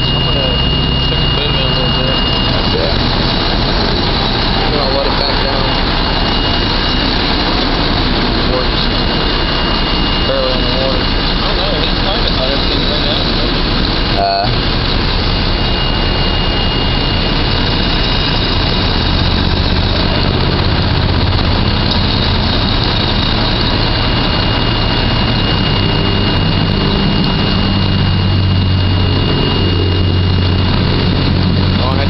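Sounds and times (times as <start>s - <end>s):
thin high whine: 0.0s - 32.0s
truck engine running: 0.0s - 32.0s.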